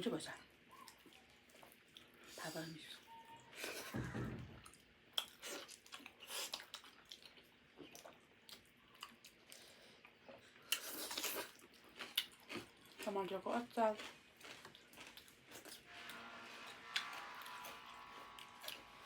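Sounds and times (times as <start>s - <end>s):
wet chewing: 5.1s - 13.2s, 13.8s - 15.8s
food crunching: 5.1s - 15.9s.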